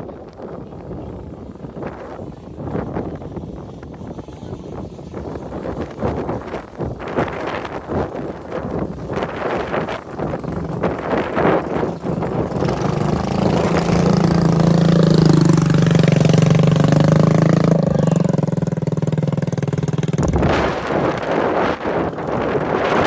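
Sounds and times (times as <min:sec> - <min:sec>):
wind buffeting microphone: 0:00.0 - 0:23.0
motorcycle engine running: 0:00.8 - 0:23.0.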